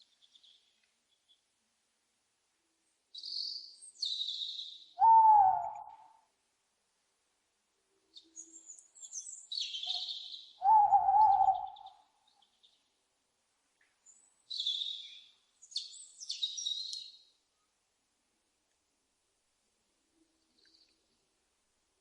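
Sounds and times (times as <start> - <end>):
owl screeching: 5.0 - 5.8, 10.6 - 11.8
owl wavering hoot: 5.0 - 6.2, 9.8 - 12.1.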